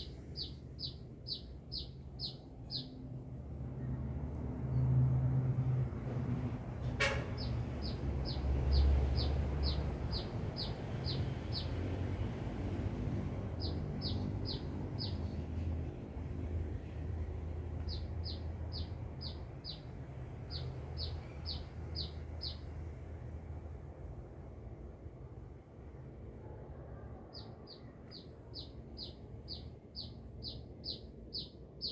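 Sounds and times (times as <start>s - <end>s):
bird chirping: 0.0s - 3.0s, 7.2s - 11.9s, 13.5s - 15.4s, 17.8s - 22.7s, 27.3s - 31.9s.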